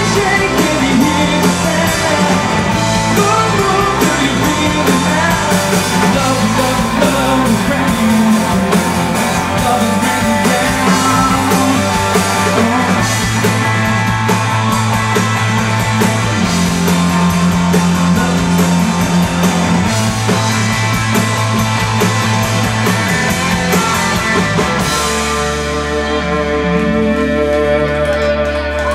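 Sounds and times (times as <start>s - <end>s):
drums: 0.0s - 28.9s
live rock band playing: 0.0s - 28.9s.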